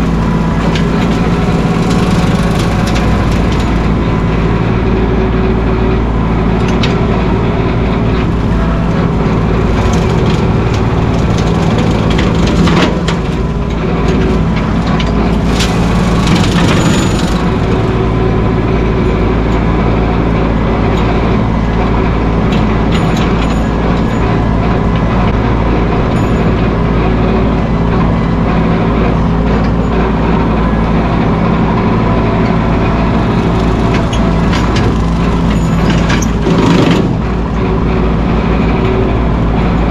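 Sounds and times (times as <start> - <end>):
tractor diesel engine running: 0.0 - 39.9
knocks and crackles: 0.1 - 5.4, 6.6 - 19.9, 32.4 - 39.0.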